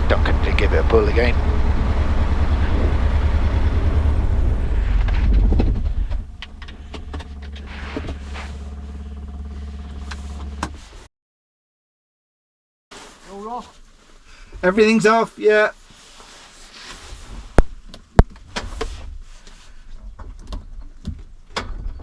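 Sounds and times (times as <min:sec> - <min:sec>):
light aircraft piston engine running: 0:00.0 - 0:11.0.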